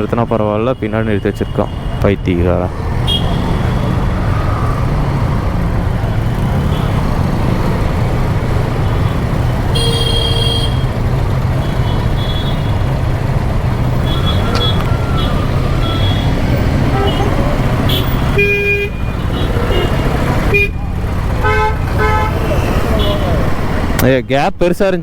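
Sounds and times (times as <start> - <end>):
motorcycle engine and road rumble: 0.0 - 24.1
vehicle horn: 3.0 - 4.1, 9.7 - 11.0, 11.6 - 12.9, 13.9 - 20.8, 21.4 - 23.5.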